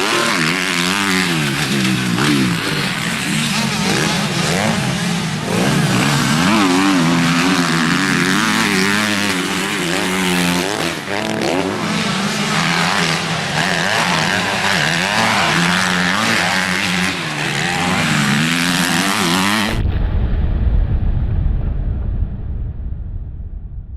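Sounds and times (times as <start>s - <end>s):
motorcycle engines revving: 0.0s - 19.8s
low rumble: 19.7s - 23.9s.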